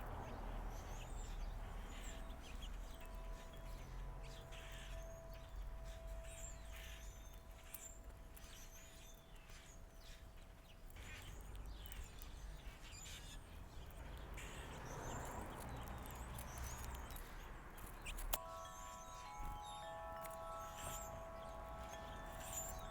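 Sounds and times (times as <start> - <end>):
small birds chirping: 0.0 - 22.9
faint steady hum: 15.4 - 22.9.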